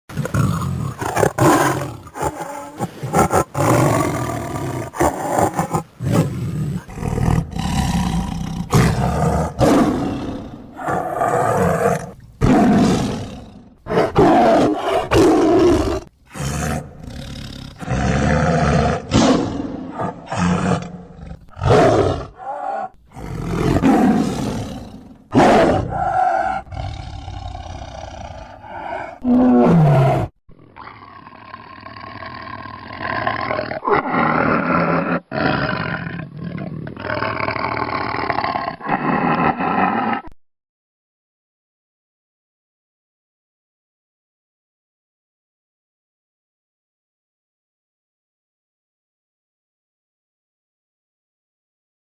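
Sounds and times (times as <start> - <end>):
wild animal roaring: 0.1 - 40.4.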